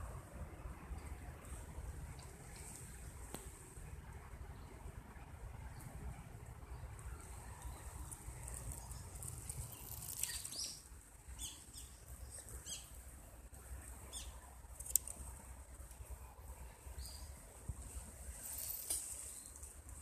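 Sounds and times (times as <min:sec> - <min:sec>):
faint rustling and scratching: 0:17.6 - 0:20.0.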